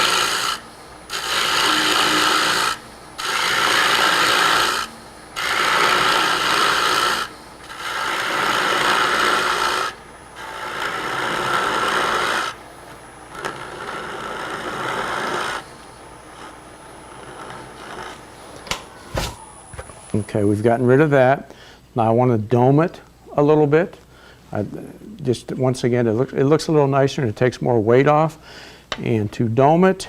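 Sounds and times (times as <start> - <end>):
lathe tool scraping wood: 0.0 - 20.2.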